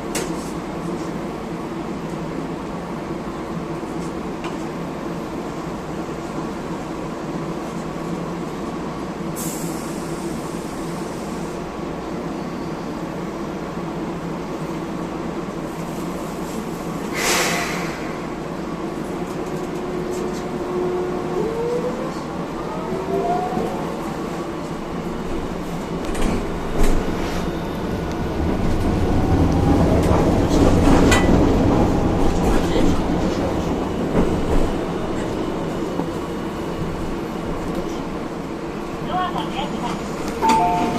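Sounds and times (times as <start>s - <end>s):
brief hiss: 17.1s - 18.3s
tram motors whining: 18.0s - 40.9s.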